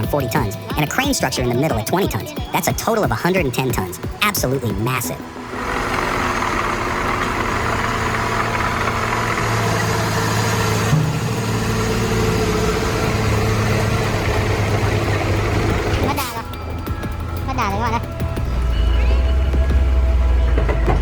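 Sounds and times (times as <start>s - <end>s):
truck engine droning under load: 0.0s - 21.0s.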